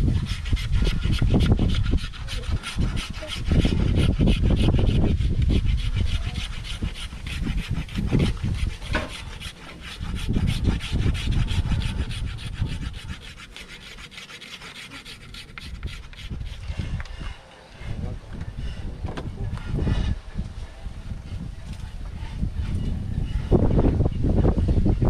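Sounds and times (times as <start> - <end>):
low handling thumps: 17.9 - 20.6.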